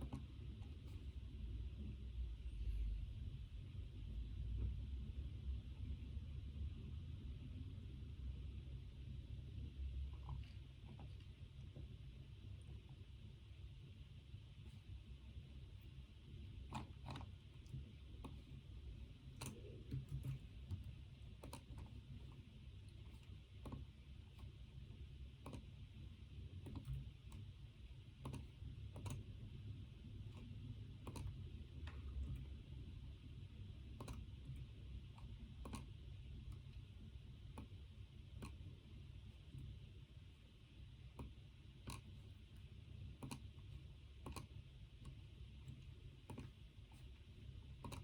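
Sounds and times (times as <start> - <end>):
computer mouse clicking: 0.0 - 1.2, 15.8 - 33.0, 33.8 - 40.0, 40.7 - 48.0
faint low hum: 0.0 - 48.0.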